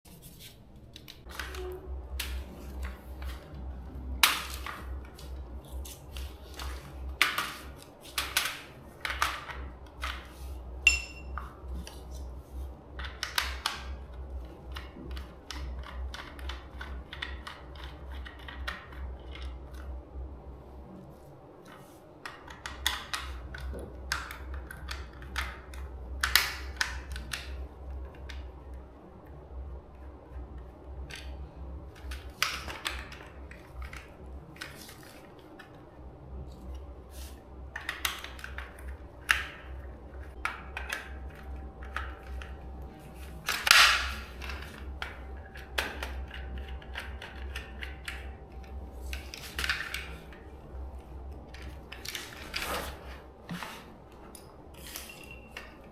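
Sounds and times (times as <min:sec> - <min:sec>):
steady low hum: 0:00.1 - 0:55.9
tools clicking and tapping: 0:06.6 - 0:11.6, 0:43.2 - 0:50.5.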